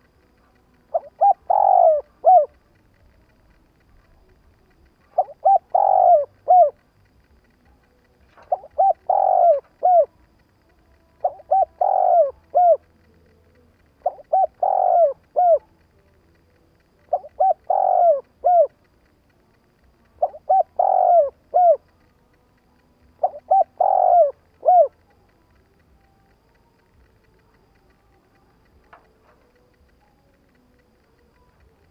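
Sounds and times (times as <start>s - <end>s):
dove cooing: 0.0s - 19.0s, 20.1s - 22.1s, 23.0s - 25.8s.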